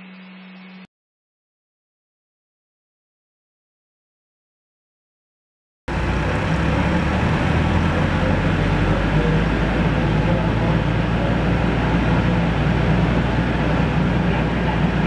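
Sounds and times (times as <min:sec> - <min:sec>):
vehicle engine and road noise: 0:05.9 - 0:15.0.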